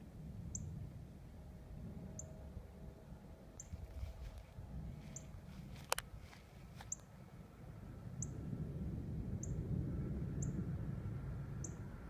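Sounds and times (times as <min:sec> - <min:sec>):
low rumble: 0:00.0 - 0:12.0
small bird chirping: 0:03.6 - 0:03.8, 0:10.4 - 0:10.6, 0:11.6 - 0:11.8.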